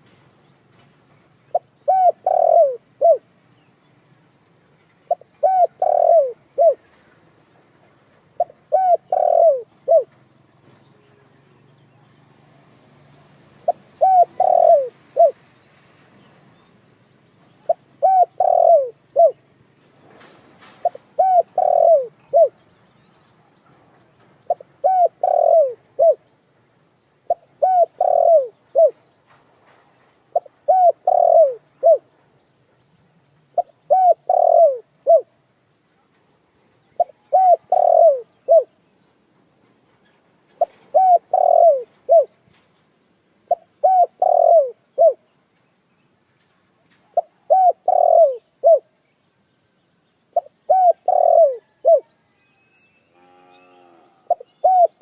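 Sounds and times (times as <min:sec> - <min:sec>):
dove cooing: 0:01.5 - 0:03.3, 0:05.1 - 0:06.8, 0:08.4 - 0:10.2, 0:13.6 - 0:15.4, 0:17.7 - 0:19.4, 0:20.8 - 0:22.6, 0:24.5 - 0:26.2, 0:27.3 - 0:29.0, 0:30.3 - 0:32.1, 0:33.6 - 0:35.3, 0:37.0 - 0:38.7, 0:40.6 - 0:42.3, 0:43.5 - 0:45.2, 0:47.1 - 0:48.9, 0:50.4 - 0:52.1, 0:53.9 - 0:55.0.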